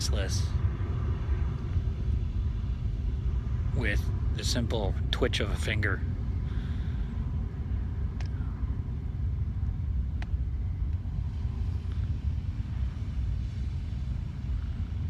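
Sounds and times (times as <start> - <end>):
low background rumble: 0.0 - 15.0
faint sharp clicks: 8.2 - 8.4, 10.2 - 11.0.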